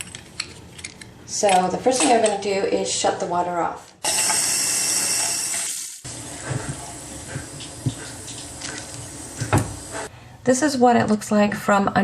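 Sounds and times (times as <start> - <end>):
water running from sink faucet: 4.1 - 10.1.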